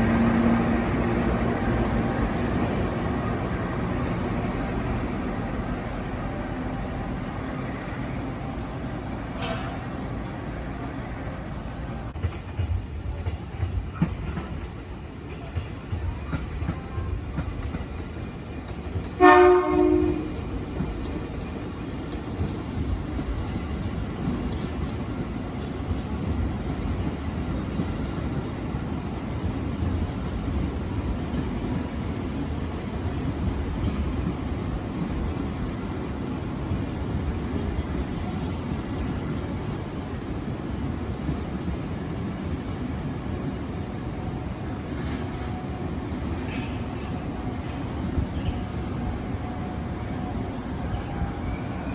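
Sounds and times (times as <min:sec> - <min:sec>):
train rumble: 0:00.0 - 0:51.9
train horn blast: 0:19.2 - 0:20.5.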